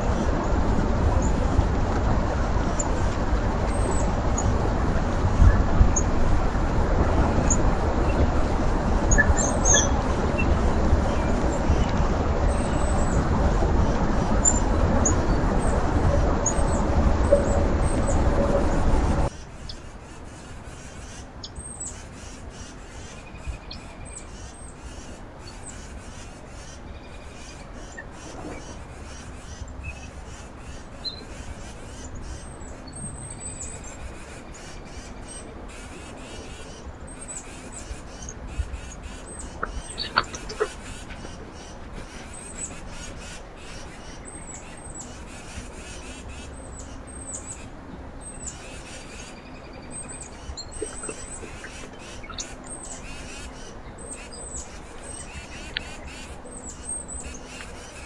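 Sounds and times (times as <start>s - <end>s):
loud steady rushing noise: 0.0s - 19.3s
small birds chirping: 2.5s - 58.0s.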